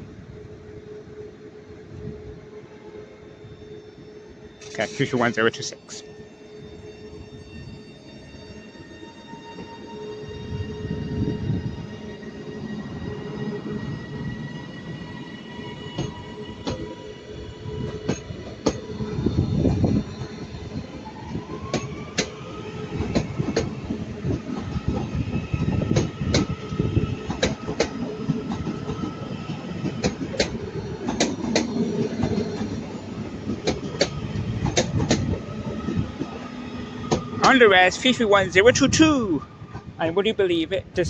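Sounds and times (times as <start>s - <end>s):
train motor whine: 0.1s - 20.4s
train wheels clicking over rail joints: 23.0s - 36.4s.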